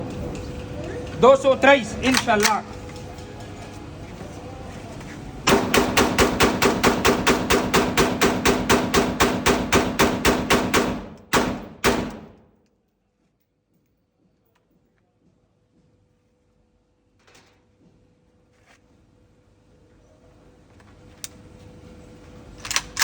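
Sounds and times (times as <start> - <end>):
rifle firing rapid shots: 5.5 - 12.4.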